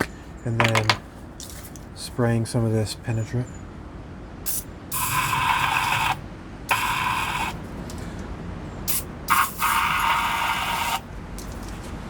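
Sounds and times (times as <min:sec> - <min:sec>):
aerosol can spraying: 0:05.0 - 0:07.6, 0:08.9 - 0:11.0.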